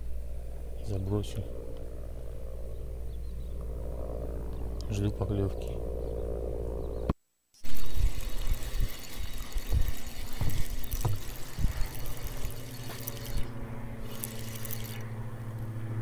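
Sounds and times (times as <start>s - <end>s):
steady low hum: 0.0s - 16.0s
water sloshing and trickling: 7.6s - 15.2s.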